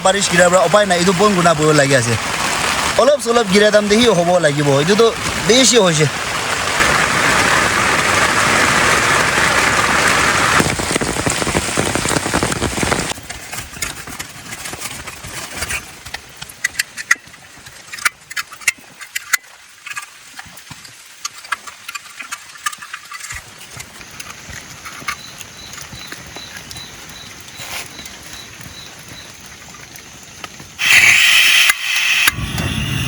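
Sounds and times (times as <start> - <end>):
heavy rain: 0.0 - 14.2
sharp ticks and knocks: 13.2 - 30.8.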